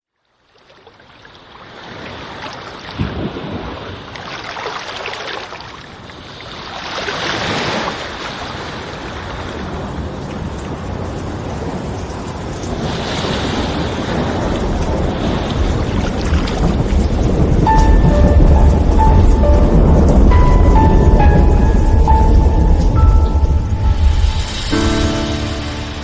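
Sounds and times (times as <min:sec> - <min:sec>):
wind: 0:00.0 - 0:26.0
waves surging: 0:01.2 - 0:26.0
low rumble: 0:17.2 - 0:26.0.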